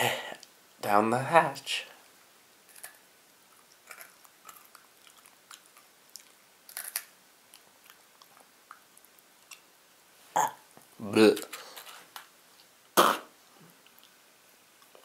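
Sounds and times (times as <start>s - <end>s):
chewing crispy fried clams: 2.7s - 9.8s.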